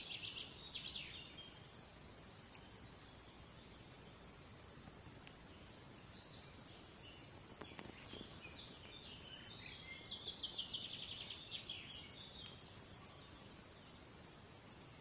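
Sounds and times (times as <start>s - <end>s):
faint bird chirps: 0.0s - 15.0s
soft clicks: 5.2s - 5.4s, 12.3s - 12.6s.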